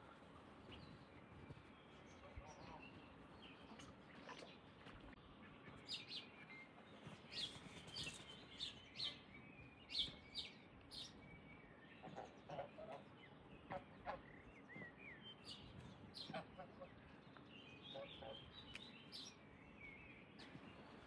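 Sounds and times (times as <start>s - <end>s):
small birds chirping: 5.4s - 21.0s.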